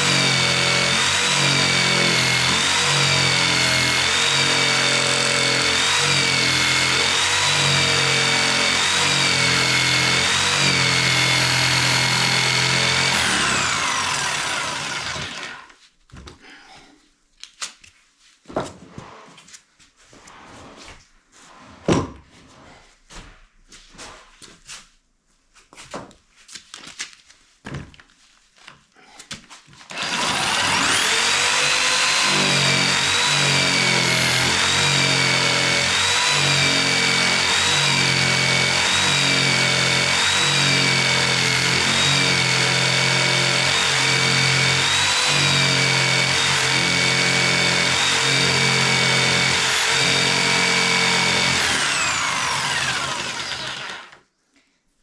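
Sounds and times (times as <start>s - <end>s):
electric jigsaw sawing wood: 0.0s - 15.8s, 29.8s - 54.3s.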